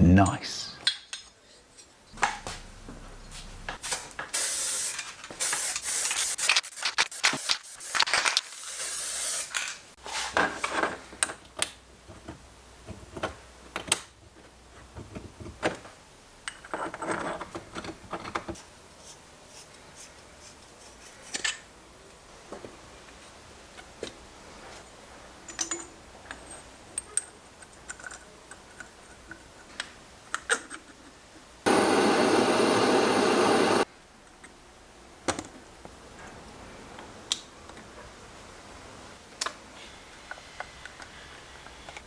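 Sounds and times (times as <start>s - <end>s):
short hissing sprays: 3.8s - 9.6s.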